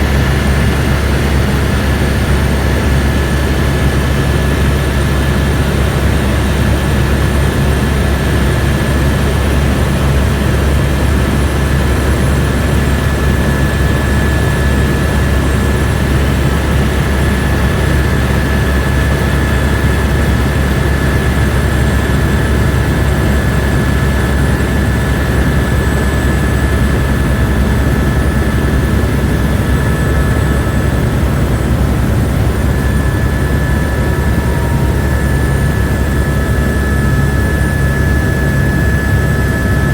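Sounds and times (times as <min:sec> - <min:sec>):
helicopter engine and rotors: 0:00.0 - 0:39.9
high whine: 0:24.0 - 0:39.9.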